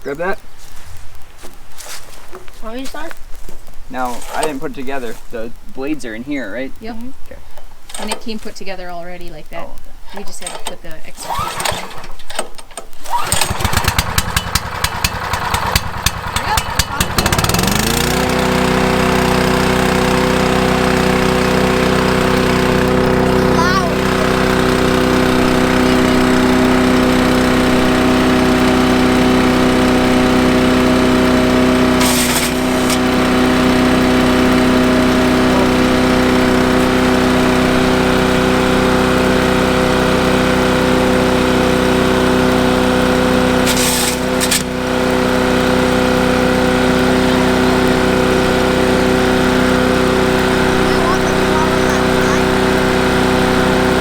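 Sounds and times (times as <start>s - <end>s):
small gas engine running: 0.0s - 0.4s, 3.9s - 6.7s, 7.9s - 8.6s, 11.2s - 54.0s
short noisy bursts: 10.6s - 12.2s, 13.0s - 38.5s, 43.5s - 44.9s, 48.9s - 53.9s.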